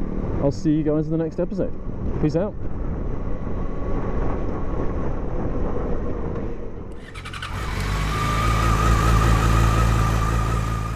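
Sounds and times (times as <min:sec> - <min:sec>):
motorcycle engine running: 0:07.0 - 0:10.9.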